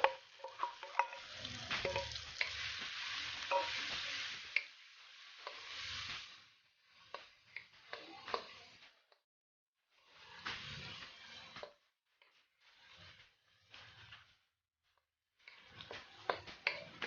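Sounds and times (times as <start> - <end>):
food sizzling in a hot pan: 0.0 - 9.1
utensil scraping a pan: 0.0 - 9.1, 9.9 - 11.8, 12.4 - 14.5, 15.4 - 17.0.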